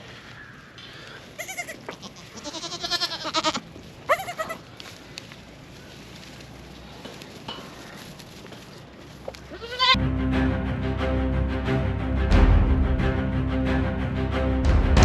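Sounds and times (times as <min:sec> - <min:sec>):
goats bleating: 0:01.4 - 0:04.6, 0:09.5 - 0:10.0.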